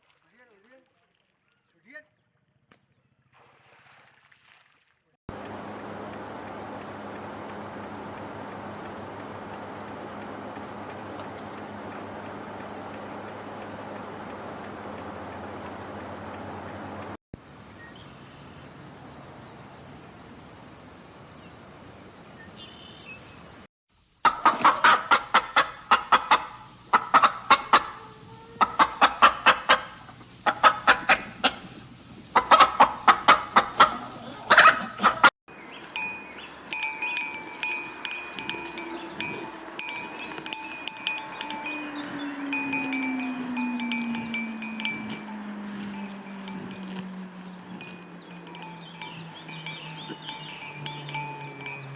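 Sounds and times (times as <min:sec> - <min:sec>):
fowl clucking: 0:24.2 - 0:35.3
ringing chime-like tones: 0:36.0 - 0:47.1, 0:47.8 - 0:51.9
low falling call: 0:36.0 - 0:51.9.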